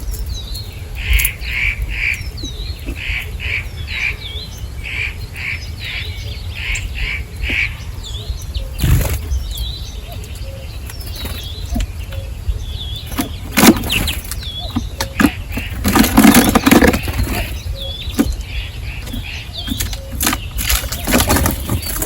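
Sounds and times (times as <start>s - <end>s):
birds chirping: 0.0s - 22.0s
wing flapping and scuffling: 8.7s - 22.0s.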